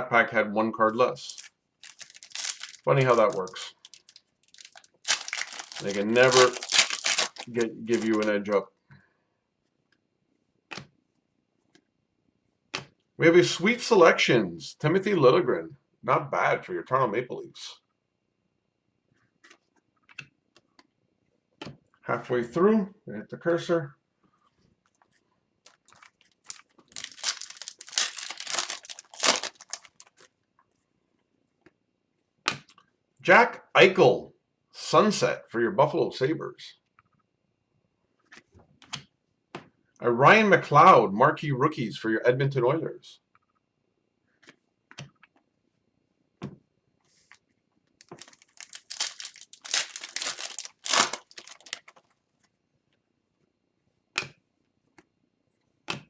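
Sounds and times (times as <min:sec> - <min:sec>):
card pack wrapper crinkling: 0:01.2 - 0:08.5, 0:25.7 - 0:30.2, 0:48.0 - 0:52.0.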